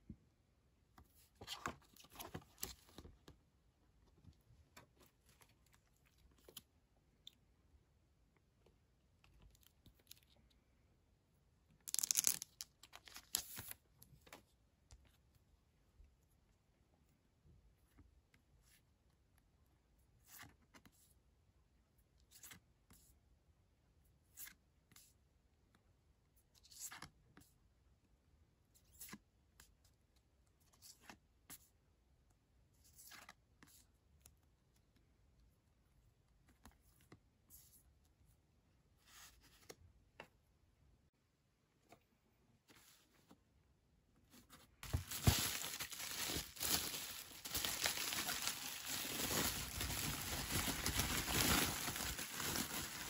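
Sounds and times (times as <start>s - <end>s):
packaging rustling and crinkling: 44.8s - 53.0s.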